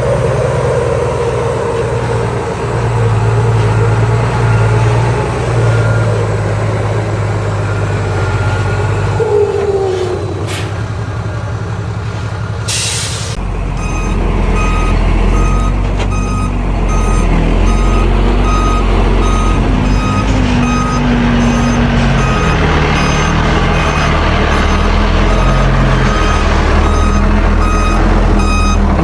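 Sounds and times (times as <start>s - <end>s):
diesel engine pulling: 0.0s - 29.0s
air brakes hissing: 9.7s - 11.0s, 11.9s - 13.4s
reversing alarm beeping: 13.8s - 29.0s.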